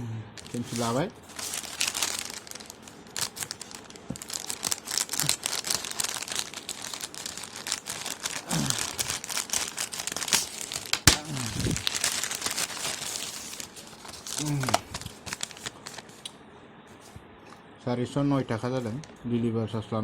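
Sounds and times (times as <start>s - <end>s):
packaging crinkling and tearing: 0.4s - 16.3s.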